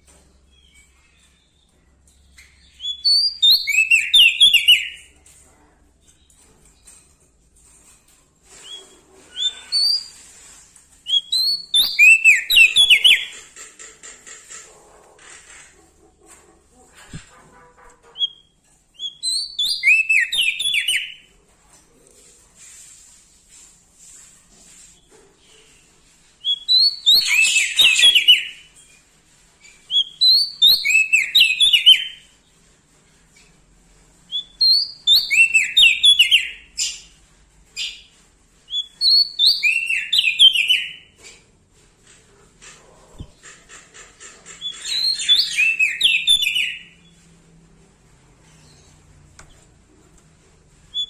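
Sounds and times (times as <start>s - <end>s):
bird whistled chirps: 11.1s - 13.3s.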